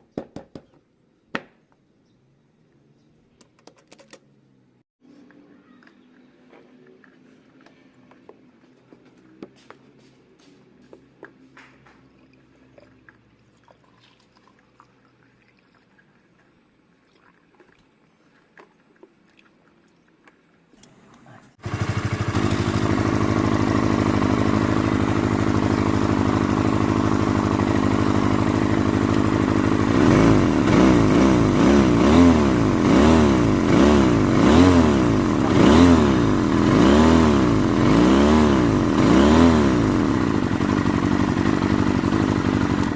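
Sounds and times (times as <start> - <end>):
motorcycle engine starting and revving: 20.8 - 42.9.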